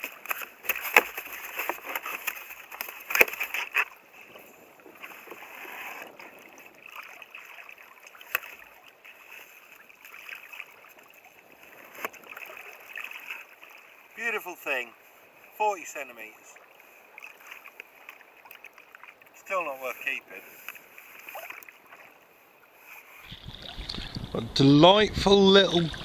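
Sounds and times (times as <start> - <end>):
water sloshing and splashing: 0.0 - 24.2.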